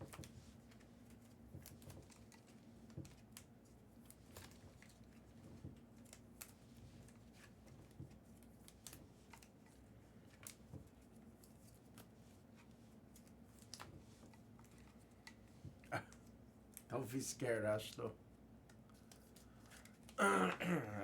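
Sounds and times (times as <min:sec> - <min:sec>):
faint clicks and taps: 0:00.0 - 0:16.9, 0:18.6 - 0:20.2.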